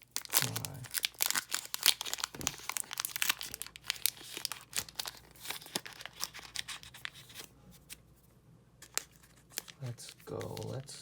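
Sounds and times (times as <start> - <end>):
foil wrapper crinkling and tearing: 0.0 - 7.5, 8.8 - 11.0.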